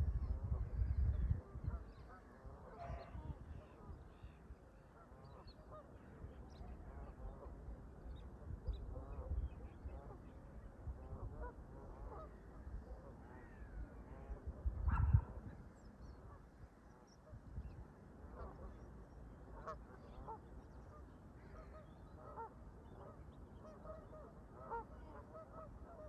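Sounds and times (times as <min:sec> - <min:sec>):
wind buffeting microphone: 0:00.0 - 0:04.1, 0:13.6 - 0:15.7
geese honking: 0:21.5 - 0:26.0.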